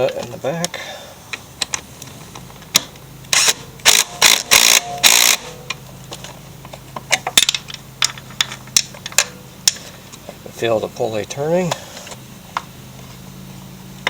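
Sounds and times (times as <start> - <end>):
steady low hum: 0.0 - 14.0
ratchet wrench ratcheting: 3.3 - 5.6.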